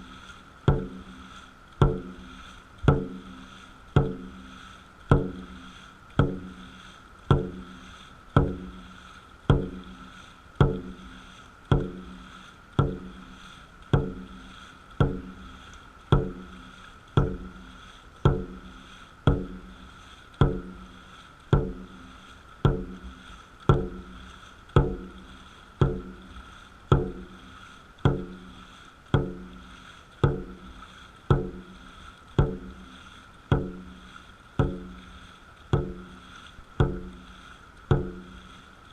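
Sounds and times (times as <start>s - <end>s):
drum struck in steady beat: 0.7s - 1.2s, 1.8s - 3.4s, 4.0s - 4.5s, 5.1s - 5.6s, 6.2s - 6.6s, 7.3s - 7.8s, 8.4s - 8.8s, 9.5s - 10.0s, 10.6s - 12.2s, 12.8s - 13.3s, 13.9s - 15.5s, 16.1s - 18.7s, 19.3s - 19.7s, 20.4s - 20.9s, 21.5s - 24.2s, 24.8s - 25.2s, 25.8s - 27.4s, 28.0s - 28.4s, 29.2s - 29.6s, 30.2s - 30.7s, 31.3s - 31.8s, 32.4s - 32.9s, 33.5s - 34.0s, 34.6s - 35.0s, 35.7s - 36.2s, 36.8s - 37.3s, 37.9s - 38.4s.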